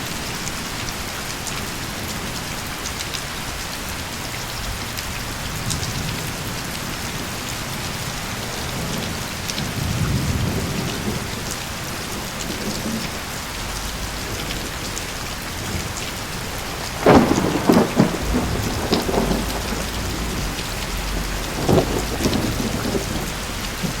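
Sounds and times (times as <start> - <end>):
steady rain: 0.0 - 24.0
low rumble of thunder: 4.5 - 24.0
sharp thunderclap with crackling peals: 7.4 - 24.0.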